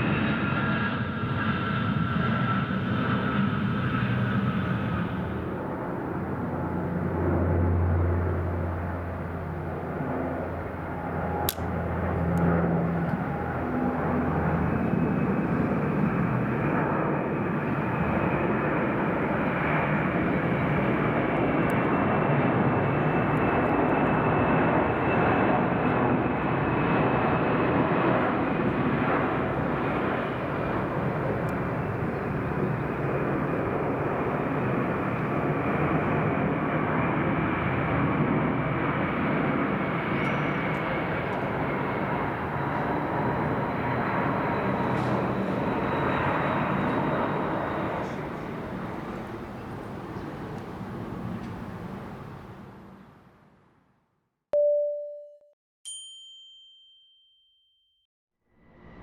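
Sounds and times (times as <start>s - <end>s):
airplane engine overhead: 0.0s - 54.0s, 58.5s - 59.0s
sharp click: 11.5s - 12.4s
faint high whine: 28.6s - 36.3s, 39.8s - 53.4s.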